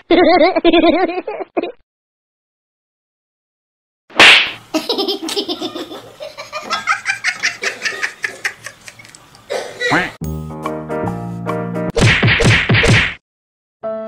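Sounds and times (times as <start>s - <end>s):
person laughing hard: 0.0s - 1.8s, 4.8s - 10.1s
music with held notes: 10.2s - 11.9s.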